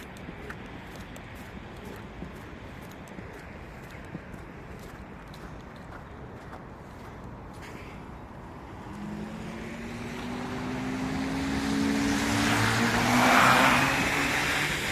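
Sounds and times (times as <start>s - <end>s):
vehicle engine passing by: 8.8s - 14.9s.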